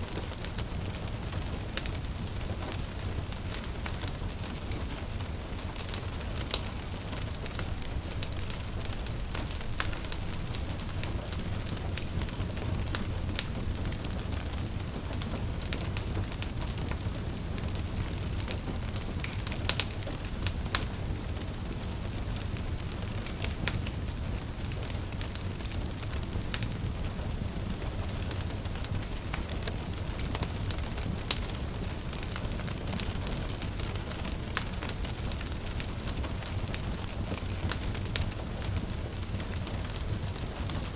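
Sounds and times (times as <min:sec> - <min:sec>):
gentle rain patter: 0:00.0 - 0:40.9
log fire crackling and popping: 0:00.0 - 0:40.9.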